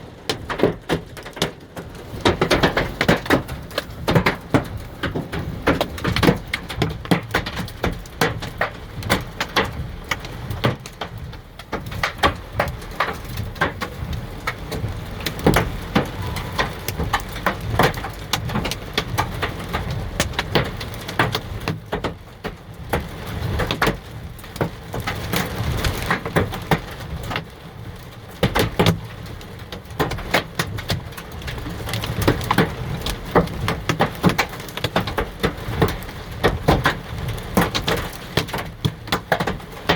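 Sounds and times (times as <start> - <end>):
hailstones hitting hard surfaces: 0.0 - 39.9
heavy rain hiss: 14.0 - 18.7.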